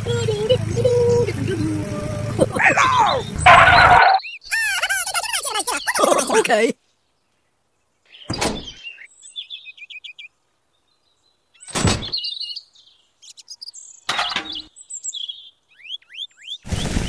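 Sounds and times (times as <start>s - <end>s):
high-pitched birds chirping: 0.0s - 17.0s
loud thumps: 11.7s - 12.2s.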